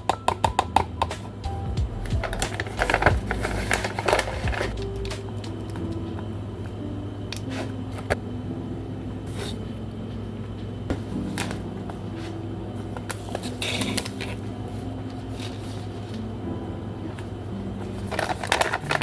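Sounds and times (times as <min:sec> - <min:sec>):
steady low hum: 0:00.7 - 0:19.0
rustling and clicks of handling: 0:02.2 - 0:08.2, 0:17.1 - 0:19.0.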